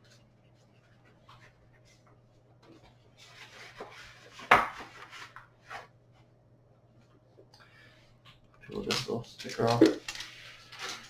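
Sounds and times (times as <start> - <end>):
paper rustling: 8.8 - 11.0.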